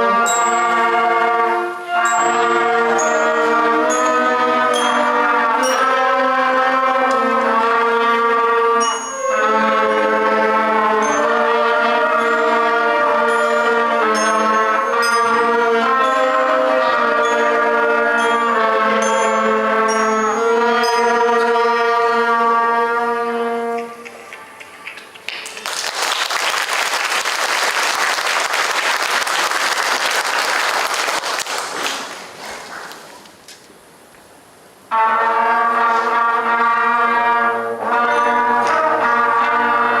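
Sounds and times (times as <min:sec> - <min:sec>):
concert band playing: 0:00.0 - 0:30.2, 0:34.9 - 0:40.0
audience applauding: 0:24.1 - 0:33.2.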